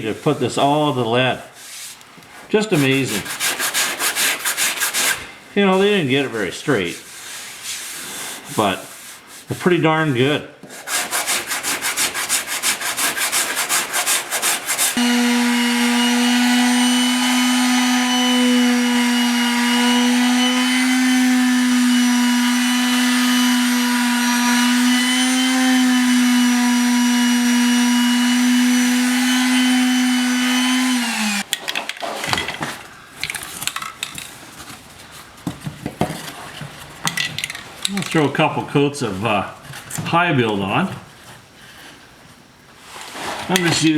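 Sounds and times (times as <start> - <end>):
sandpaper rubbing: 1.6 - 2.0, 2.6 - 5.2, 6.9 - 9.6, 10.6 - 25.8.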